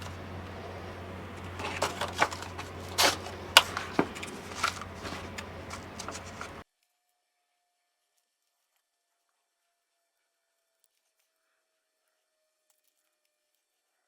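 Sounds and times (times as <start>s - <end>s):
low steady hum: 0.0s - 6.6s
plant pots and soil handled: 0.0s - 6.6s.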